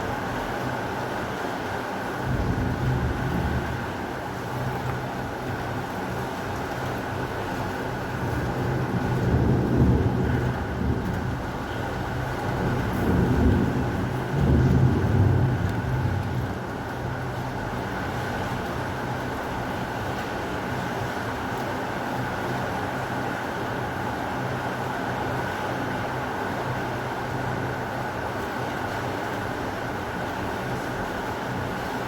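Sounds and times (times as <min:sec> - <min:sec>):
heavy rain falling: 0:00.0 - 0:32.0
low thunder rumble: 0:02.2 - 0:04.2, 0:08.2 - 0:17.2.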